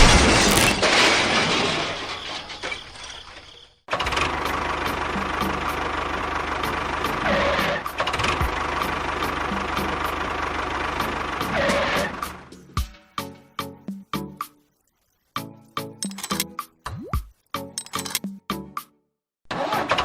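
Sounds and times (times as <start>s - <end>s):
small engine running: 3.9s - 12.4s.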